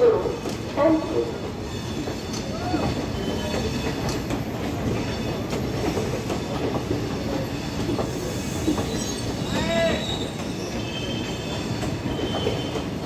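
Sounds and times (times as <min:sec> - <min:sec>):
train coaches rumbling and hissing: 0:00.0 - 0:13.0
train wheels clicking: 0:00.2 - 0:13.0.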